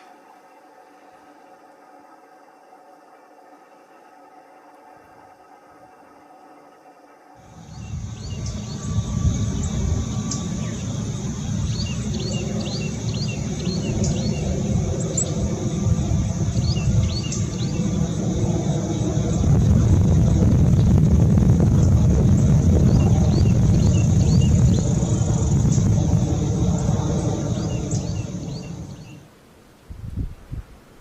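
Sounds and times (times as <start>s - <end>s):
loud steady low rumble: 7.4s - 29.2s
small birds chirping: 7.4s - 29.2s.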